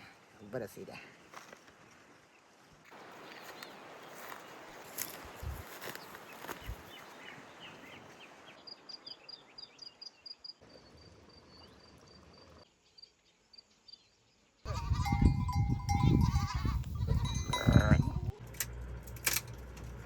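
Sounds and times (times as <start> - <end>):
livestock bleating: 14.7 - 18.3.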